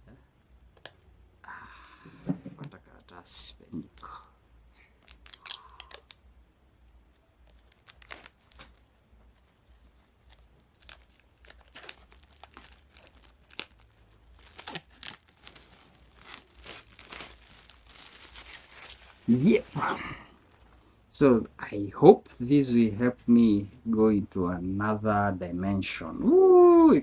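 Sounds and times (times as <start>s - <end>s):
paper packaging tearing and crinkling: 5.0s - 6.2s, 7.4s - 20.8s.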